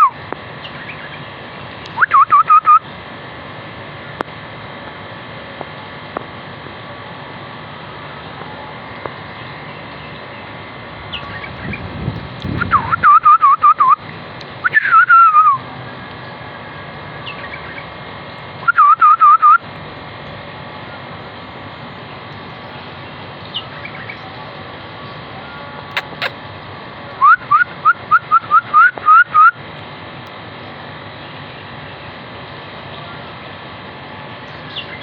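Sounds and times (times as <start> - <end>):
bulbul whistled song: 1.9 - 2.8, 12.6 - 14.0, 14.6 - 15.6, 18.6 - 19.6, 27.2 - 29.6
faint short chirps: 25.9 - 26.4.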